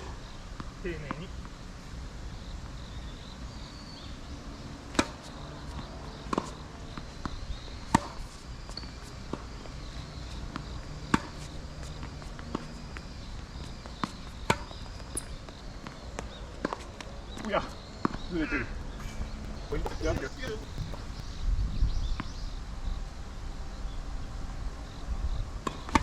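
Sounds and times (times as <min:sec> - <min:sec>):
wind on microphone: 0:18.8 - 0:22.2
racket striking tennis ball: 0:19.0 - 0:21.2
tennis ball bouncing: 0:19.0 - 0:21.3.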